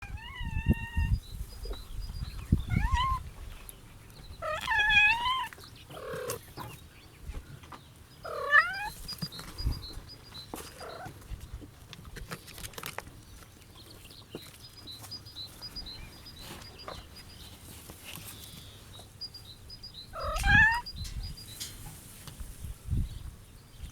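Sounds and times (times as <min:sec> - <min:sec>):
kittens meowing: 0:00.0 - 0:01.2, 0:02.6 - 0:03.2, 0:04.4 - 0:06.4, 0:08.2 - 0:09.0, 0:20.1 - 0:21.2.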